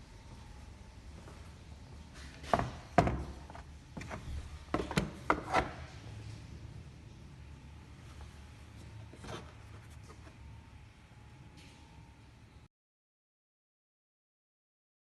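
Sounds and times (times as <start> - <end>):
hard objects knocking and clunking: 2.2 - 5.9.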